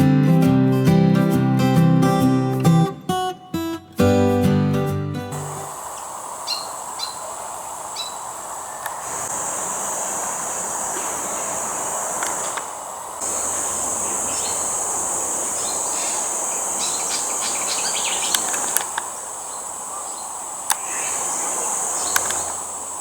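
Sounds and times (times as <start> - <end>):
insects droning: 5.3 - 23.0
bird chirps: 5.4 - 9.3, 10.5 - 22.8
sharp clicks: 8.8 - 9.1, 12.2 - 12.7, 18.2 - 19.1, 20.6 - 20.9, 22.1 - 22.6.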